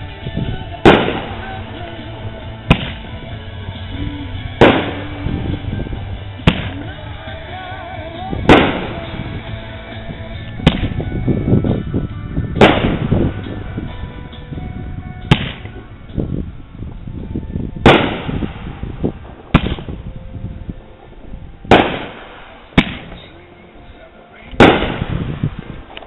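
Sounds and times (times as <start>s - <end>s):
fireworks loud bangs: 0.8s - 3.4s, 4.6s - 7.1s, 8.4s - 9.5s, 10.6s - 11.2s, 12.5s - 14.0s, 15.2s - 15.9s, 17.8s - 20.0s, 21.7s - 23.3s, 24.6s - 26.0s.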